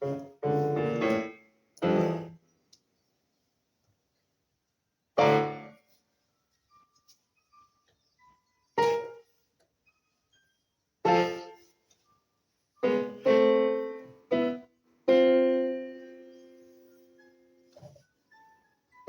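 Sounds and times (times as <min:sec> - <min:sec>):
piano chords: 0:00.0 - 0:02.4, 0:05.2 - 0:05.8, 0:07.5 - 0:09.2, 0:11.1 - 0:11.6, 0:12.8 - 0:19.0.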